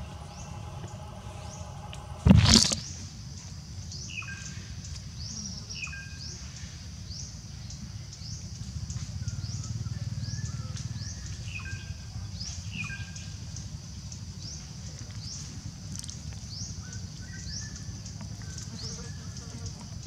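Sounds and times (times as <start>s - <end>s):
birds chirping: 0.0s - 3.0s, 3.8s - 20.0s
low rumble: 0.0s - 3.1s
steady high drone: 0.0s - 3.2s.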